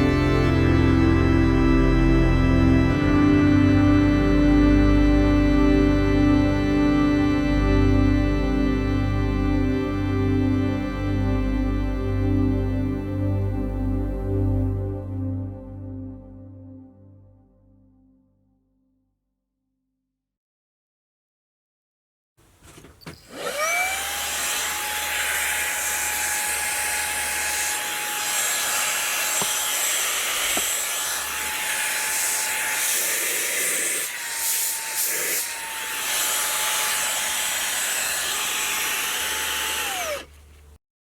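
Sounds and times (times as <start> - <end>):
handheld vacuum motor whine: 22.6 - 40.7.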